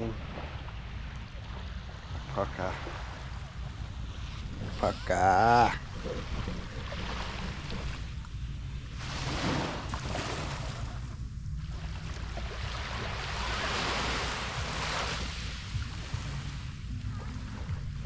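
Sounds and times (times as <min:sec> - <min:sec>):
small waves washing on beach: 0:00.0 - 0:18.0
wind rumble on microphone: 0:00.0 - 0:18.0.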